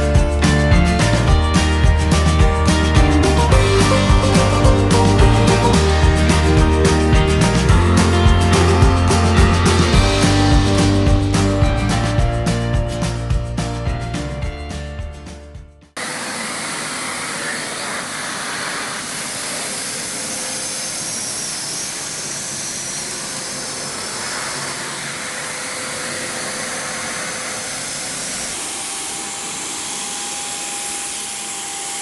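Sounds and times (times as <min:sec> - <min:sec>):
vacuum cleaner motor running: 0:16.0 - 0:32.0.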